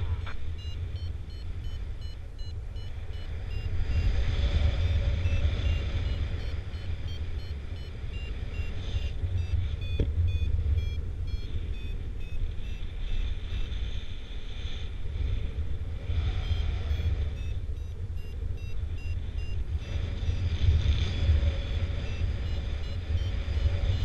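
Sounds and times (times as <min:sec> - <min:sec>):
variometer beeping: 0:00.0 - 0:13.1, 0:16.4 - 0:24.0
wind rushing on microphone: 0:02.8 - 0:24.0.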